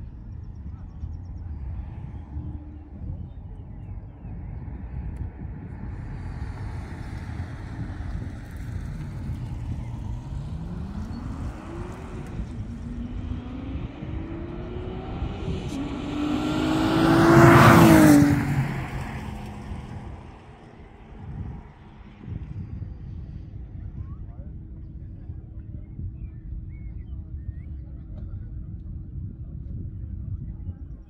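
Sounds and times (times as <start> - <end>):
car accelerating and passing by: 1.2 - 23.0.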